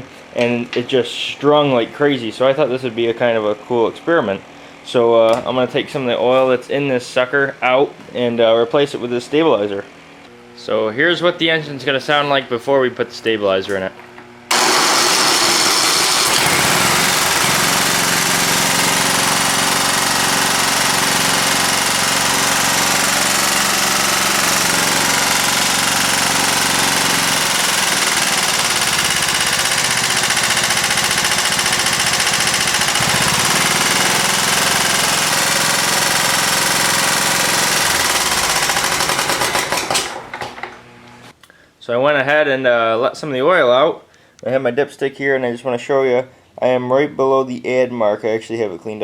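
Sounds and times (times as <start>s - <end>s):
mower engine knocking: 14.5s - 40.4s.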